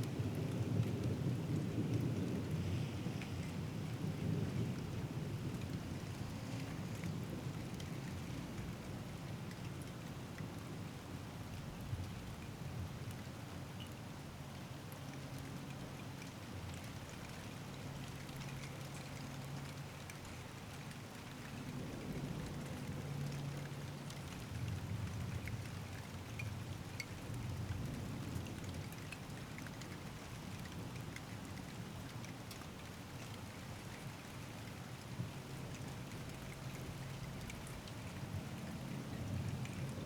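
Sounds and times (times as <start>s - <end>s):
raindrops ticking on surfaces: 0.0s - 40.0s
steady rain: 0.0s - 40.0s.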